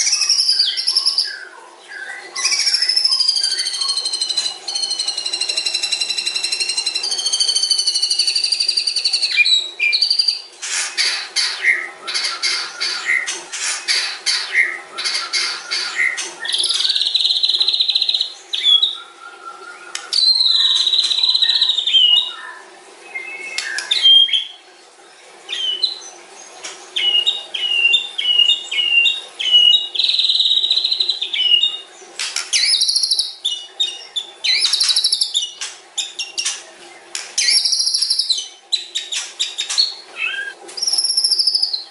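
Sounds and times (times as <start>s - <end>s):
bird singing clear whistles: 2.1s - 10.4s, 32.6s - 33.7s, 37.4s - 41.9s
bird's sharp rattling clicks: 32.2s - 32.7s.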